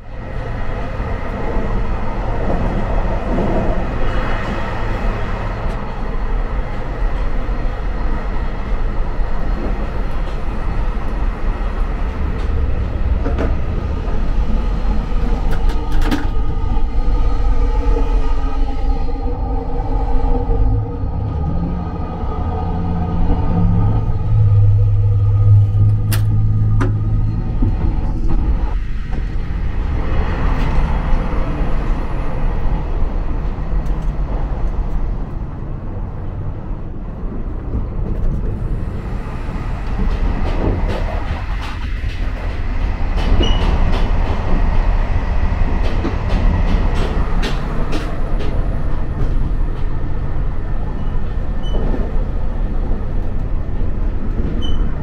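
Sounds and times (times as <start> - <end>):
train interior rumble: 0.0 - 55.0
loud low hum: 10.8 - 41.7.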